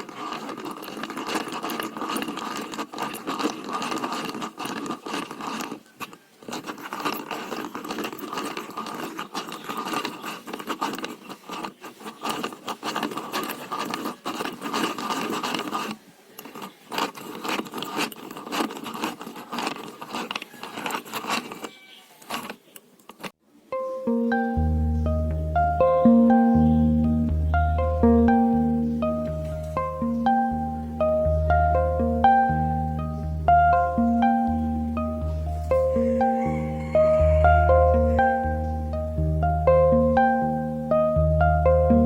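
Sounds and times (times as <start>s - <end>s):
hand-crank drill gears clicking: 0.0s - 23.4s.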